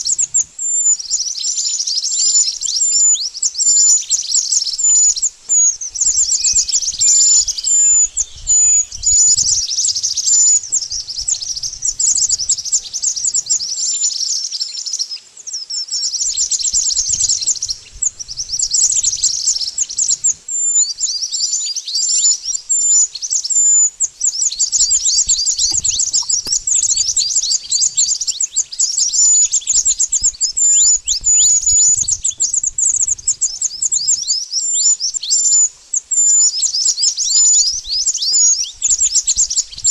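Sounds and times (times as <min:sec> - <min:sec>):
high-pitched bird chirps: 0:16.2 - 0:39.9.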